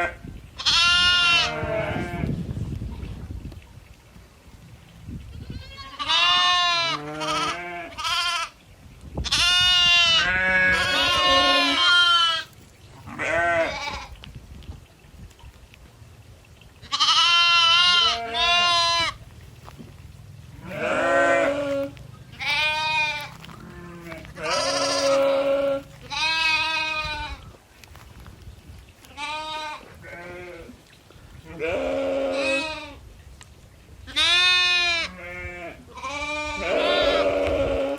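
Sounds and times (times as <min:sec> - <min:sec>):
goats bleating: 0:00.0 - 0:02.3, 0:05.3 - 0:08.6, 0:09.3 - 0:14.2, 0:16.8 - 0:19.2, 0:20.6 - 0:27.4, 0:29.0 - 0:30.8, 0:31.5 - 0:33.0, 0:34.1 - 0:37.9.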